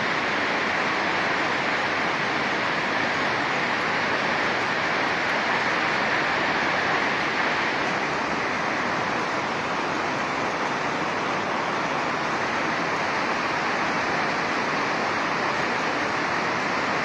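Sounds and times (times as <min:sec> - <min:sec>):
waterfall rushing: 0:00.2 - 0:10.4.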